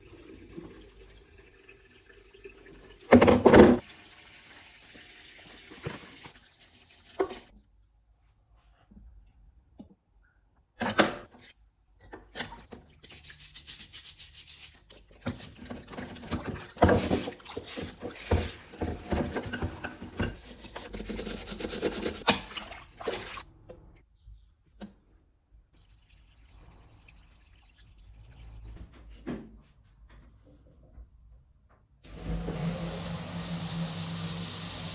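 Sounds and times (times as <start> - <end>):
rubbing and scrubbing: 12.9 - 23.5
water running and splashing: 21.7 - 23.5.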